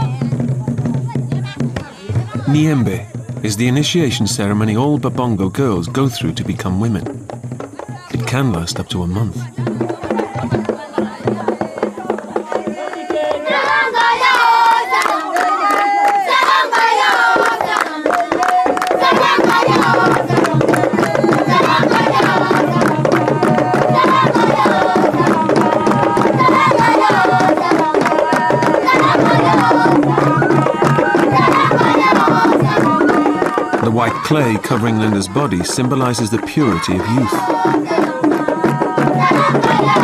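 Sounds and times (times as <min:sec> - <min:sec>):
hand drums and percussion: 0:00.0 - 0:40.0
group of voices chanting: 0:09.5 - 0:40.0.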